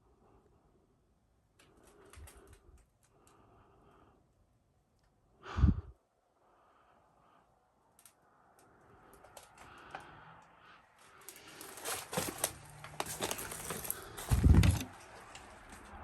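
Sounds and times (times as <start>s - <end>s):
footsteps crunching on floorboards: 11.4s - 14.9s
heavy thud: 14.3s - 14.8s.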